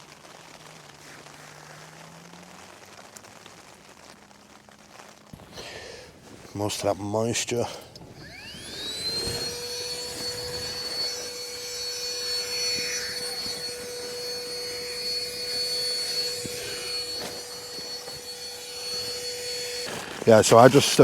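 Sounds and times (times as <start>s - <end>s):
electric motor whining: 5.4s - 21.0s.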